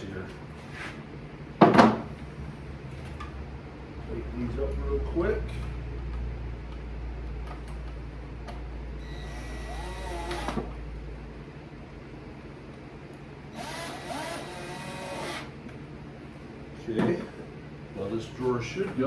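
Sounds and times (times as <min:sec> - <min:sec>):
cordless drill driving screws: 0:09.0 - 0:10.6, 0:13.6 - 0:15.5.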